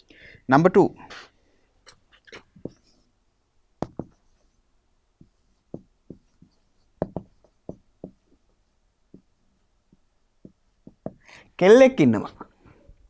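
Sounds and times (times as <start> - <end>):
taps and knocks on a board: 3.8 - 4.2, 5.2 - 6.3, 7.0 - 8.2, 9.9 - 11.2.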